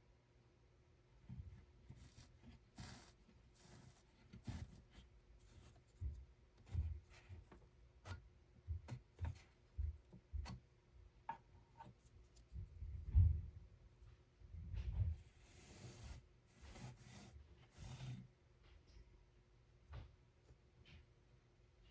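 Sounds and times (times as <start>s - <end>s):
soft thumps and light clicks: 1.2s - 15.4s.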